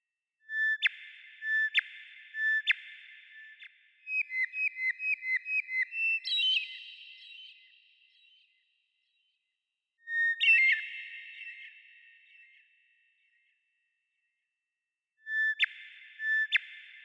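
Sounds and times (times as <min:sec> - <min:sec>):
bird whistling: 0:04.1 - 0:07.7.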